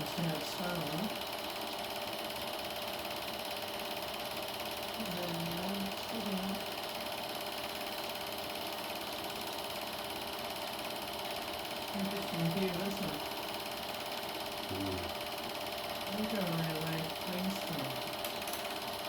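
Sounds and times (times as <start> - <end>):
film projector clatter: 0.0 - 19.0
faint low voice murmuring: 14.7 - 15.1.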